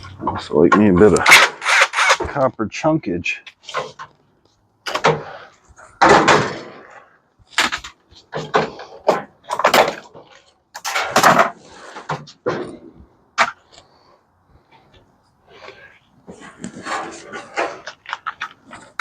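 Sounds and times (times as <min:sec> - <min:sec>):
metal clanks and knocks: 0:07.6 - 0:13.6.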